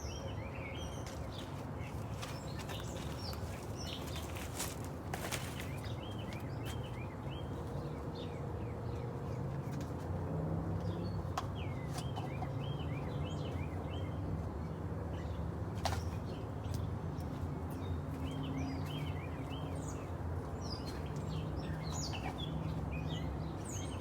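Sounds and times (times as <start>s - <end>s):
birds chirping: 0.0s - 9.4s, 15.1s - 24.0s.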